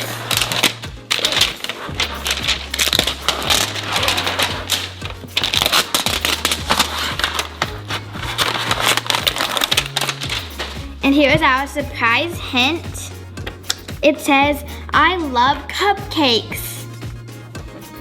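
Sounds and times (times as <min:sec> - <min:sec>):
plastic packaging tearing: 0:00.0 - 0:11.0
background music with bassline: 0:00.0 - 0:18.0.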